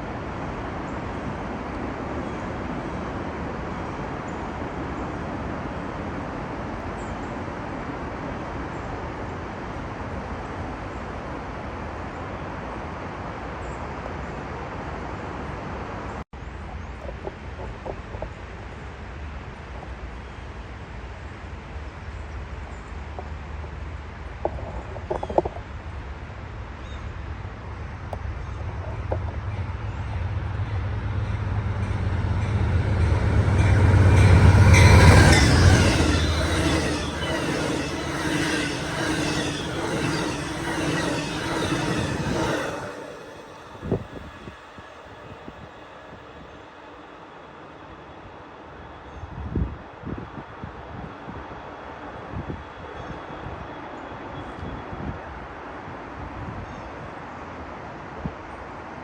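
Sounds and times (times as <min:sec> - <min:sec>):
train wheels rumbling on rail: 0:17.0 - 0:47.4
faint squealing: 0:29.5 - 0:46.1.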